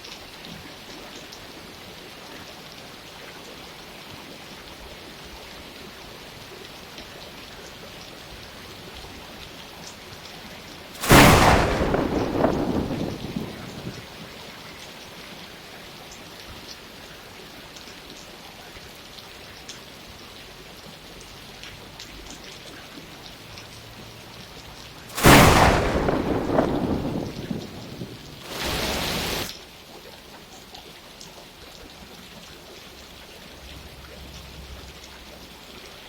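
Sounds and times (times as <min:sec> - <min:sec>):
steady rain falling: 0:00.0 - 0:36.0
thunderclap rumbling: 0:11.0 - 0:14.3, 0:25.1 - 0:29.5.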